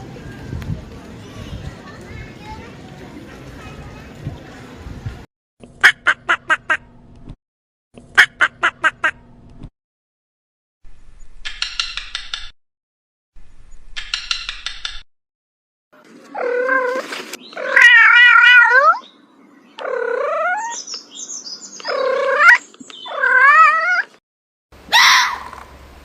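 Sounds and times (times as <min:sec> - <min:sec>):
cat meowing: 0:17.6 - 0:19.0.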